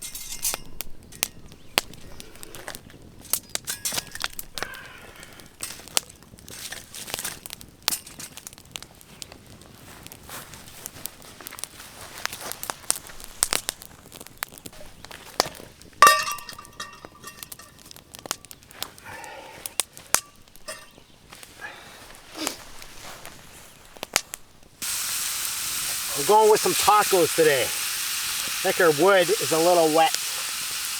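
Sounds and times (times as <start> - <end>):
metallic ringing knock: 16.0 - 17.7
crinkling and rustling: 19.8 - 24.8.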